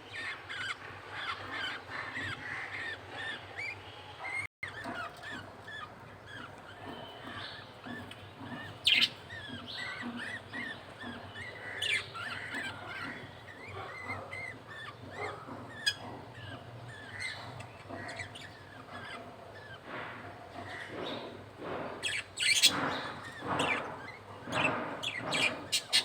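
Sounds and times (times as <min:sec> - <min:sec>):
budgerigars chirping: 0:00.1 - 0:20.0, 0:22.0 - 0:26.0.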